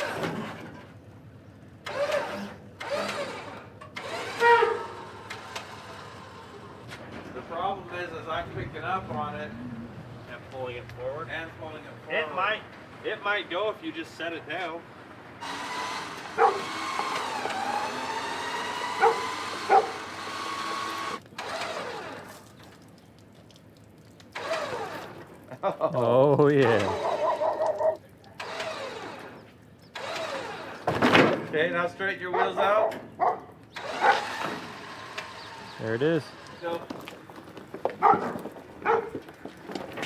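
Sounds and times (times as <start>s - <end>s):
vehicle engine revving: 0.0s - 0.9s, 1.8s - 7.1s, 15.4s - 22.4s, 33.7s - 37.2s
steady mechanical whine: 1.8s - 12.4s, 15.3s - 22.5s, 33.8s - 37.0s
dog barking: 16.4s - 16.7s, 19.0s - 20.0s, 26.9s - 28.0s, 32.3s - 34.3s, 38.0s - 39.2s.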